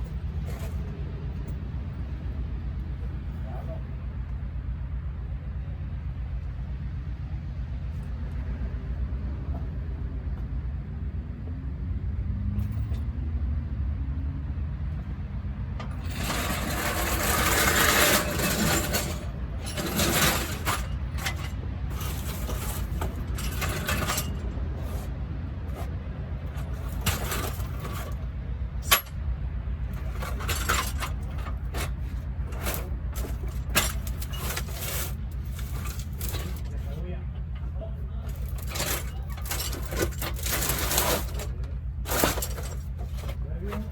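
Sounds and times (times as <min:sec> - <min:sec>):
metal tools clinking and scraping: 0:00.0 - 0:01.6, 0:15.8 - 0:29.2, 0:29.8 - 0:43.9.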